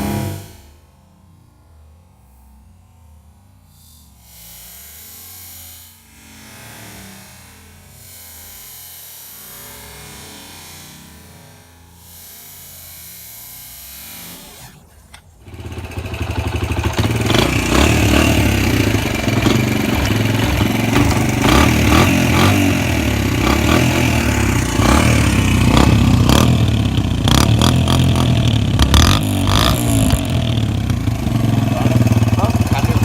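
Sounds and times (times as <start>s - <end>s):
dirt bike engine revving: 0.0s - 0.7s, 13.6s - 33.0s
clattering engine knocks: 15.4s - 33.0s.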